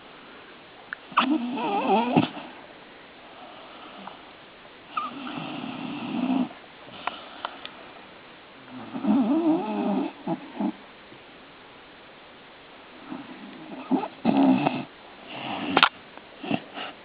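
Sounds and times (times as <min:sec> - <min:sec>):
dog snoring: 0:01.1 - 0:02.5, 0:04.9 - 0:07.4, 0:08.6 - 0:10.8, 0:13.0 - 0:17.0.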